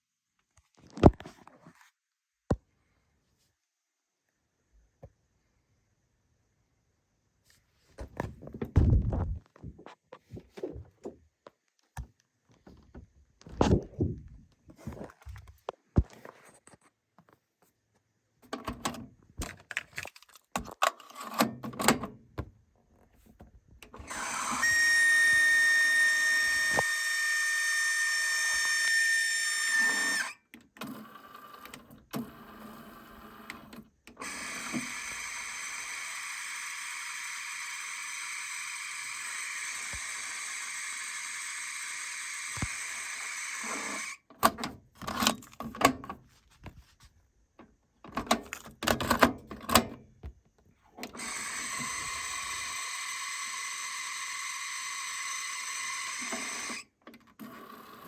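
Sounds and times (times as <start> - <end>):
high-pitched cassette deck whine: 23.8 - 44.3, 51.0 - 58.0.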